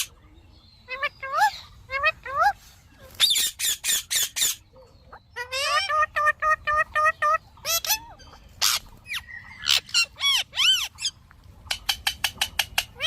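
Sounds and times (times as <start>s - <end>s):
parrot chirping and calling: 0.0s - 0.2s, 0.8s - 13.0s.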